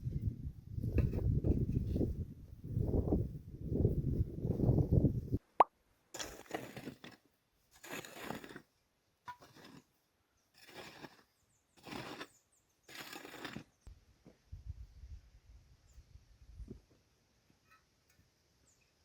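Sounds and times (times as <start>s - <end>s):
hand tool scraping dirt: 6.1s - 13.9s.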